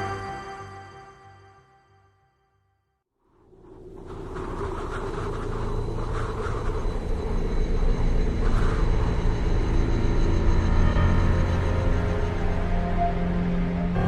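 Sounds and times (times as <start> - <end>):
dark cinematic background music: 3.7 - 14.0.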